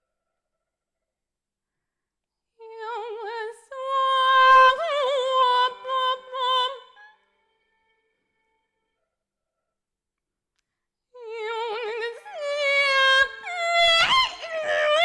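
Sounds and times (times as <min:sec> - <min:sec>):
woman singing operatically: 0:02.6 - 0:07.0, 0:11.2 - 0:15.0.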